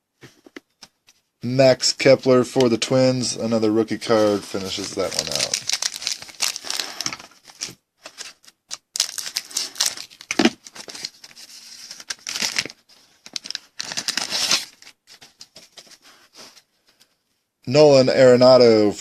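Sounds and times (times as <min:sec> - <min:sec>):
plastic wrapper crinkling and tearing: 0:03.5 - 0:15.5.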